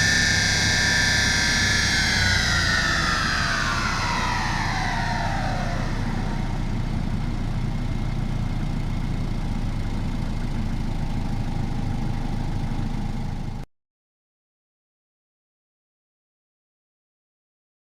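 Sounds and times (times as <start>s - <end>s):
high engine whine falling: 0.0s - 9.3s
diesel engine idling: 0.0s - 13.6s.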